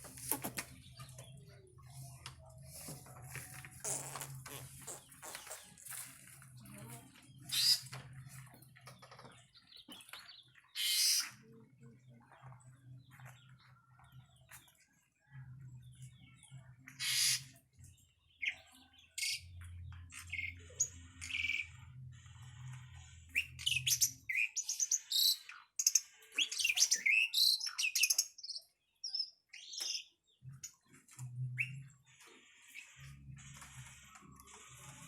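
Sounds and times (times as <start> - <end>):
birds chirping and whistling: 7.3 - 11.5, 16.2 - 22.6, 23.2 - 35.0.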